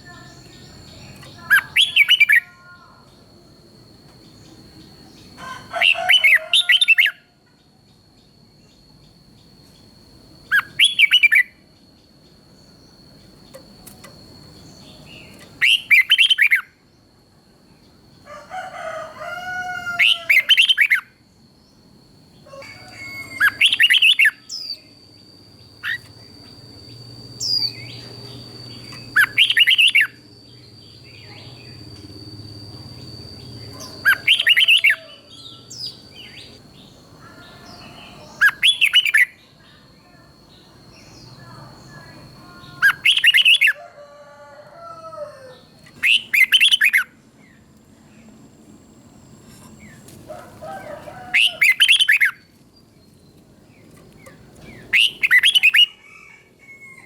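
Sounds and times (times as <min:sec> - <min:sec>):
bird singing whistled phrases: 0:00.2 - 0:02.5, 0:10.5 - 0:11.6, 0:15.2 - 0:16.7, 0:23.1 - 0:24.9, 0:27.4 - 0:31.8, 0:32.9 - 0:36.6, 0:37.8 - 0:39.4, 0:41.0 - 0:43.8, 0:46.0 - 0:47.1, 0:54.7 - 0:56.0.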